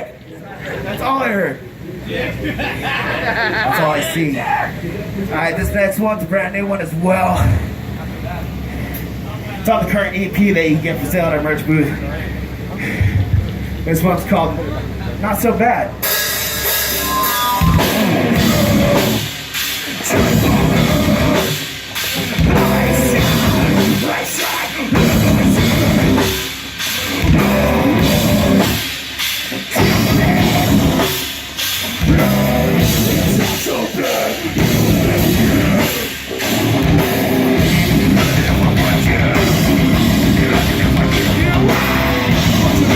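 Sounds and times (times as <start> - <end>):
heavy guitars: 0.8 - 42.9
heavy metal band playing: 15.2 - 42.9
pounding drum kit: 16.0 - 42.9.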